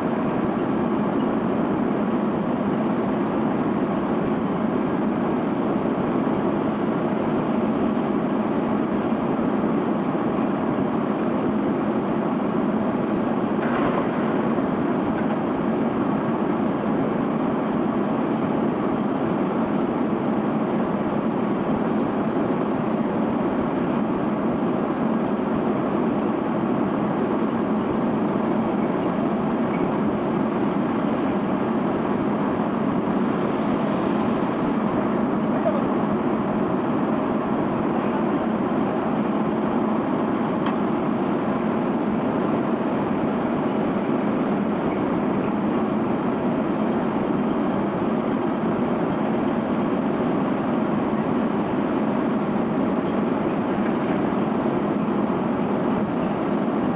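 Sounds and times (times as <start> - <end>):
conveyor belt running: 0.0 - 56.9.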